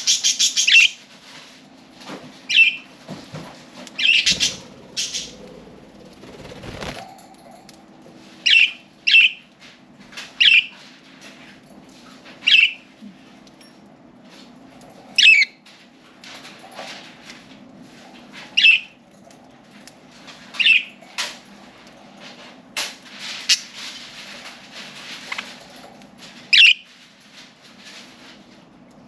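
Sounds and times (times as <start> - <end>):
low steady hum: 3.0 - 10.3
budgerigars calling: 4.0 - 5.5.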